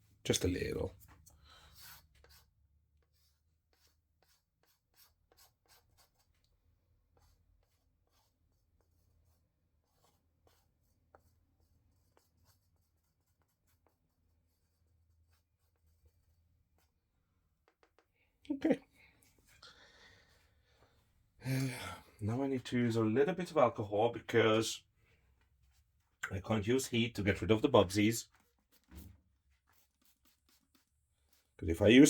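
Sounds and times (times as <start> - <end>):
tool scratching through wet resin: 28.3 - 31.6.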